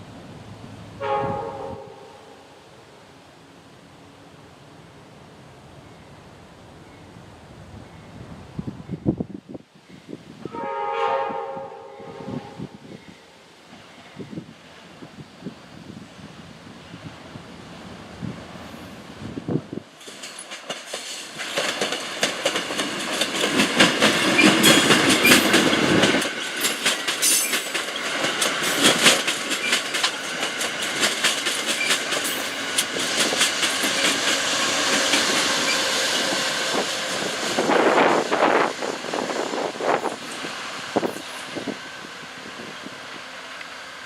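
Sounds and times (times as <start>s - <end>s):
deep train rumble: 0.0s - 44.0s
train wheels clattering over rail joints: 20.0s - 41.8s.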